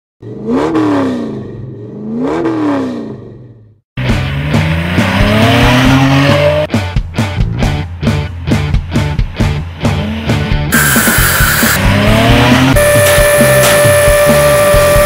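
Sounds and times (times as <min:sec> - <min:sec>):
car engine revving: 0:00.2 - 0:06.7, 0:09.8 - 0:15.0
loud rock music: 0:04.0 - 0:15.0.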